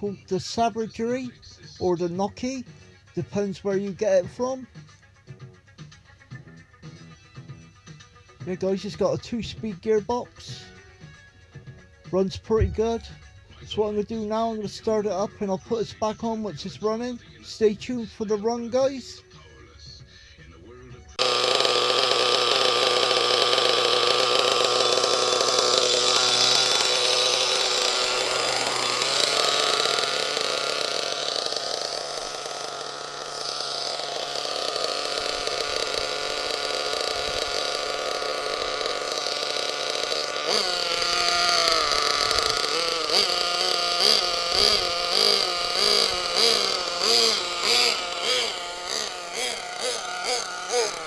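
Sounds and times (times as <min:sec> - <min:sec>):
engine throttle blips: 0:12.1 - 0:18.6, 0:21.2 - 0:51.0
small nitro engine idling: 0:21.1 - 0:51.0.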